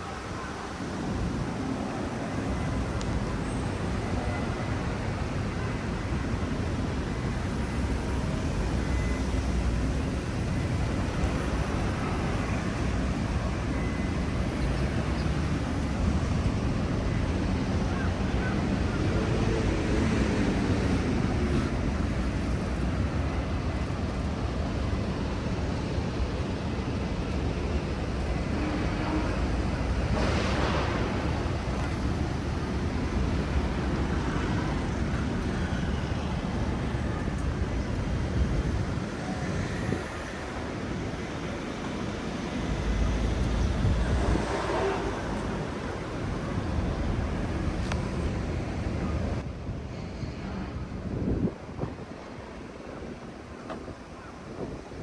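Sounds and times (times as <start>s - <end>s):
passing traffic: 0.0s - 55.0s
passing vehicle hiss: 27.0s - 53.2s.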